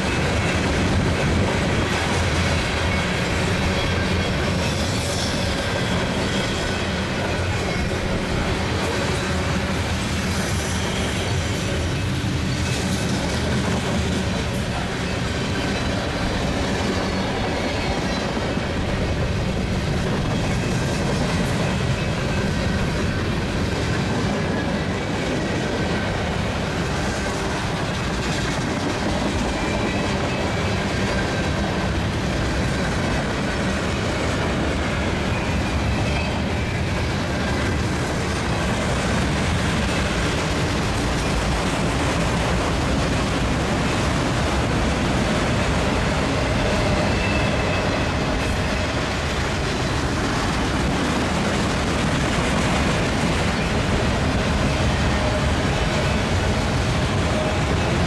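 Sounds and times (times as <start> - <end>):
steel wheels rolling on rail: 0.0 - 58.0
high wheel squeals: 46.2 - 49.1.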